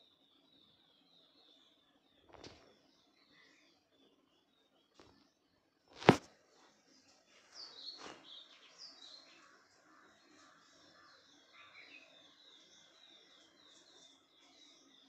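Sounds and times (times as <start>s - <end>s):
small birds chirping: 0.0s - 15.0s
sharp knock: 6.0s - 6.3s.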